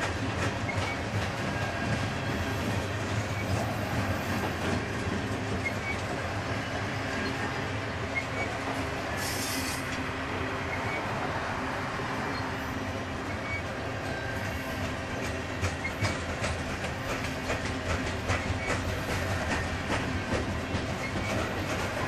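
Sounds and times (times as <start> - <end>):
wheels clicking over rail joints: 0.0 - 7.5, 13.2 - 22.0
steel wheels rumbling on rail: 0.0 - 22.0.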